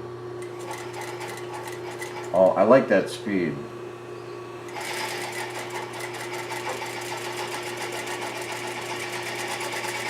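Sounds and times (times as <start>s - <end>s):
motor hum: 0.0s - 10.0s
sewing machine needle ticking: 4.7s - 8.5s.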